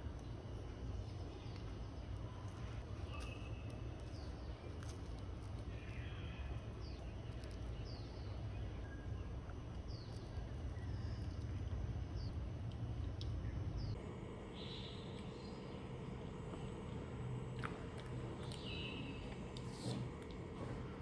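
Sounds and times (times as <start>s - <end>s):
small birds chirping: 0.2s - 12.4s, 13.0s - 21.0s
steady low rumble: 10.0s - 21.0s.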